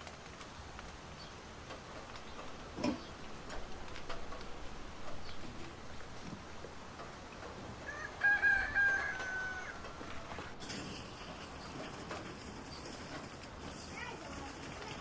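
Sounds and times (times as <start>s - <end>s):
rooster crowing: 7.8s - 10.5s.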